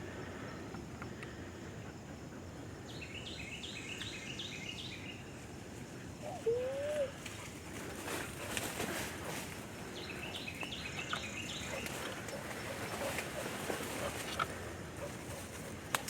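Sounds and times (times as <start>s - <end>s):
background hiss: 0.0s - 16.0s
birds calling: 9.1s - 15.5s.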